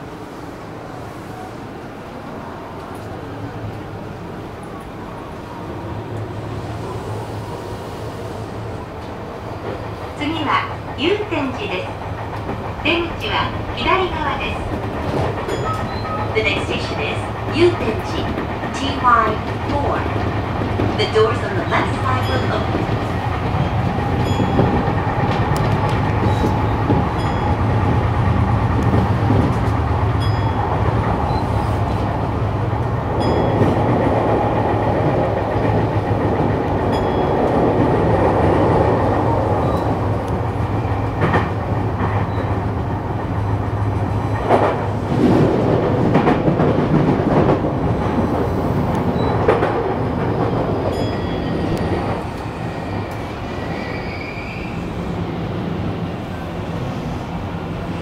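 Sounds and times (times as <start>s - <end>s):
rail-joint clicks: 2.8s - 3.8s, 8.9s - 54.1s
train wheels running on rails: 5.8s - 58.0s.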